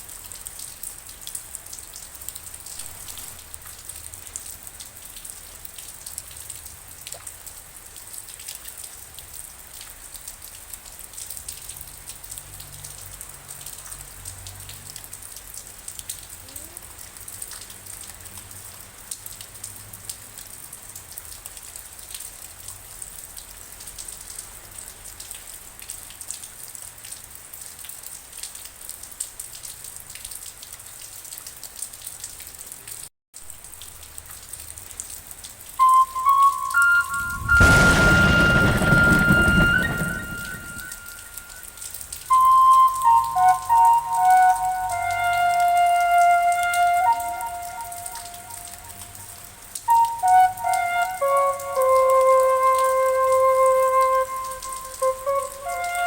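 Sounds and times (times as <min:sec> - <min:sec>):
rain drops ticking on hard surface: 0:00.0 - 0:56.0
low rumble: 0:37.0 - 0:41.6.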